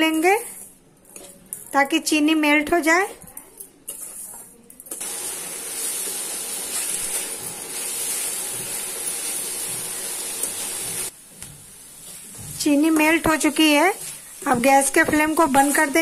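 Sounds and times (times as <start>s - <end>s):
coconut and sugar sizzling in pan: 4.9s - 16.0s.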